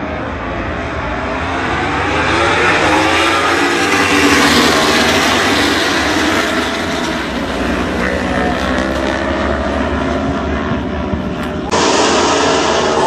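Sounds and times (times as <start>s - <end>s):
racing motorcycles at high revs: 0.6s - 11.8s.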